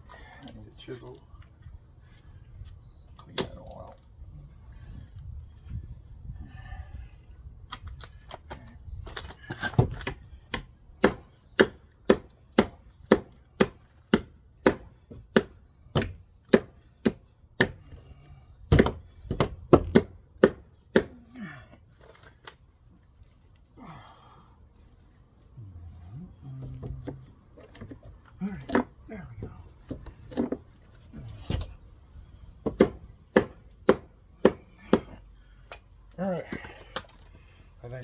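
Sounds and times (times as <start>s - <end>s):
hammer striking chisel: 10.0s - 17.8s, 19.8s - 21.1s, 32.7s - 35.1s.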